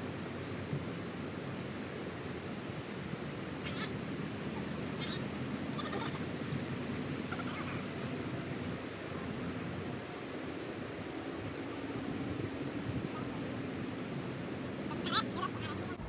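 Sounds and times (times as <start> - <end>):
short high animal calls: 3.6 - 6.4, 7.2 - 8.0.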